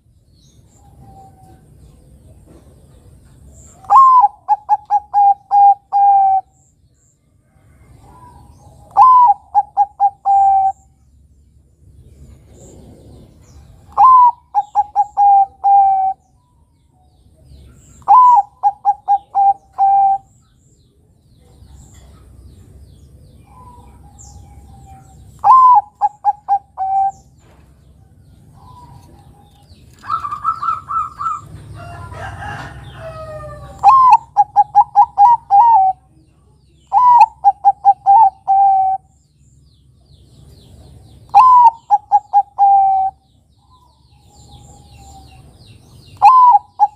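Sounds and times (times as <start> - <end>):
dove cooing: 3.7 - 6.5, 7.9 - 10.9, 12.5 - 16.2, 18.0 - 20.3, 23.4 - 27.3, 28.6 - 36.1, 36.9 - 39.1, 41.3 - 45.4, 46.2 - 46.9
higher held bird call: 8.2 - 10.8, 18.0 - 20.3, 36.9 - 39.1.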